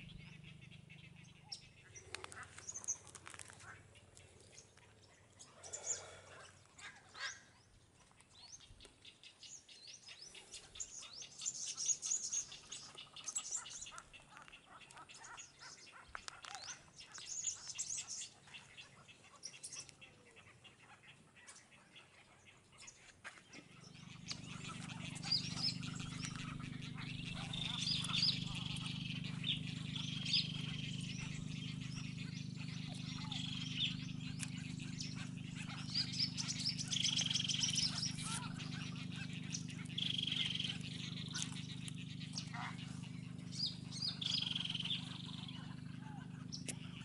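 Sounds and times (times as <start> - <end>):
birds chirping: 0.0 - 47.0
low steady hum: 0.0 - 47.0
quick ticking bird calls: 22.8 - 47.0.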